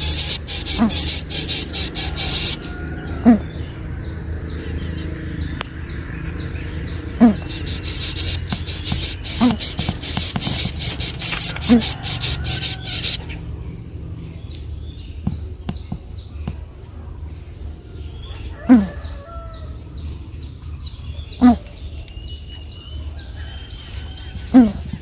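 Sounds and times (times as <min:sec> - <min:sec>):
rapid high buzzing: 0:00.0 - 0:02.8, 0:07.1 - 0:13.6
low falling bird calls: 0:00.0 - 0:16.7
birds chirping: 0:00.0 - 0:25.0.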